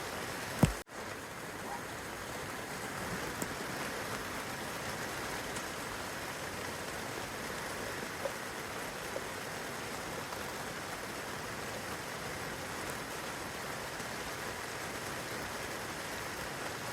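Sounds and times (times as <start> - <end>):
rain falling on leaves: 0.0 - 16.9.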